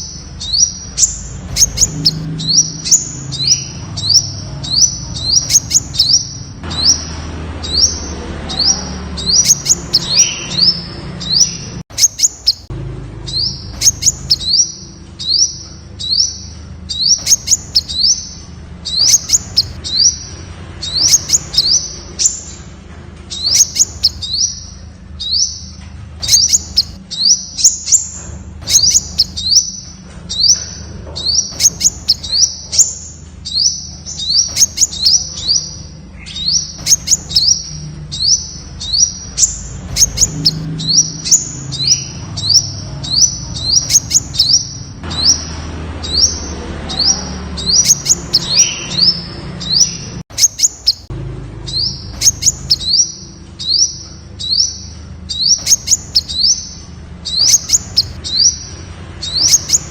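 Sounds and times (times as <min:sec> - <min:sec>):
bird calling high notes: 0:00.0 - 0:12.7.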